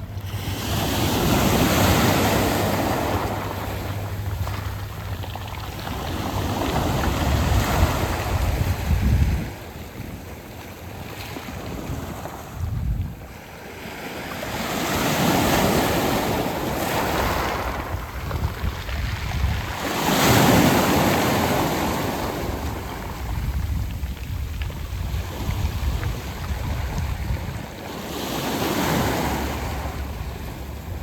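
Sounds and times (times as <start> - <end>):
waves washing onto pebble beach: 0.0 - 9.6, 13.2 - 31.0
steady low rumble: 0.0 - 13.7, 16.1 - 20.0, 20.8 - 27.9, 29.0 - 31.0.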